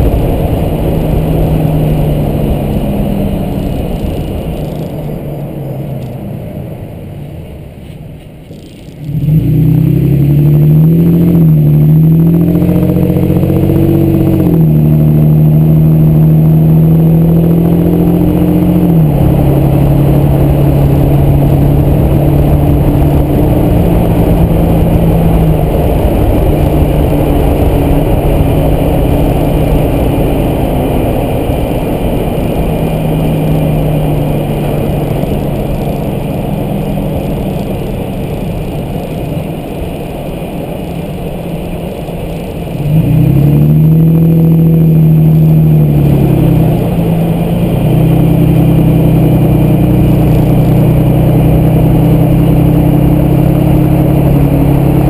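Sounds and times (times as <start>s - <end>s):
road noise: 0.0s - 55.0s
truck engine driving: 0.0s - 55.0s.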